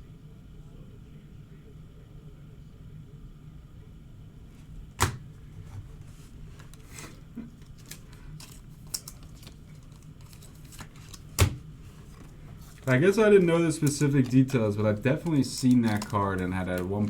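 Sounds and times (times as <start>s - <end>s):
faint steady hum: 0.0s - 17.0s
cards and packaging rustling: 5.0s - 17.0s.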